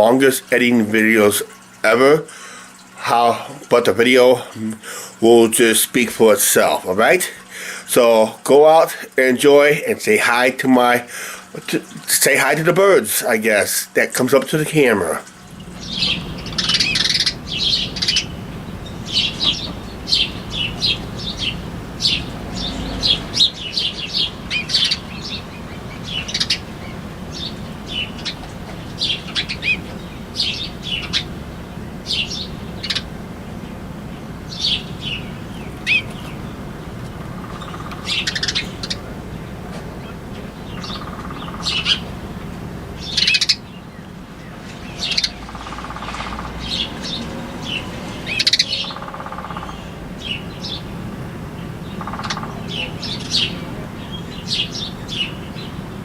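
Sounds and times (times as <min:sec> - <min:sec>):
steady low hum: 0:00.0 - 0:56.0
small birds chirping: 0:14.8 - 0:56.0.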